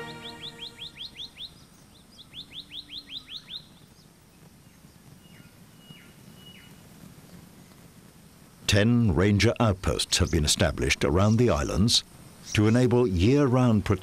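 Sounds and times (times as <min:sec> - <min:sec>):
bird calling short notes: 0:00.0 - 0:01.5
faint whistled bird notes: 0:00.0 - 0:03.9.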